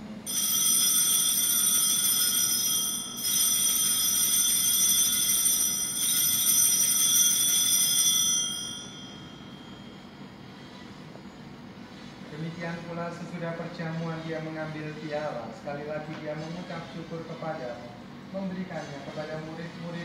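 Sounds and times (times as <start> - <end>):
altar bells ringing: 0.2 - 10.3.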